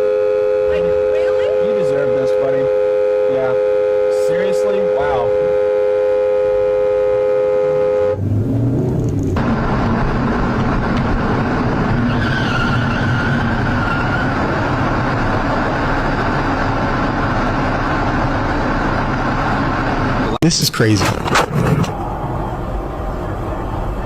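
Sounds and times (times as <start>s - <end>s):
car horn two-note blare: 0.0s - 8.2s
car engine and road noise: 0.0s - 24.0s.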